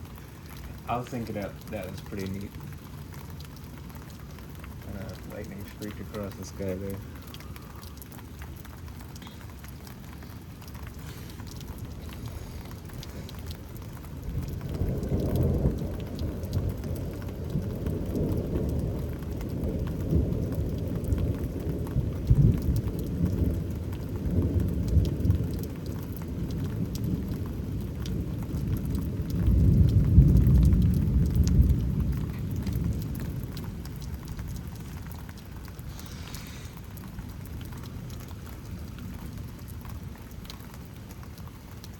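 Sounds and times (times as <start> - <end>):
steady rain: 0.0 - 41.9
rolling thunder: 9.8 - 40.1.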